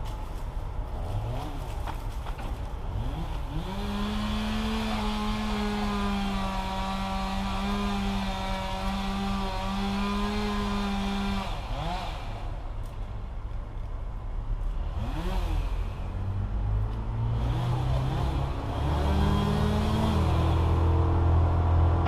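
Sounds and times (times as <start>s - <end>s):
chainsaw revving: 2.9s - 12.6s, 14.9s - 16.2s, 17.2s - 22.0s.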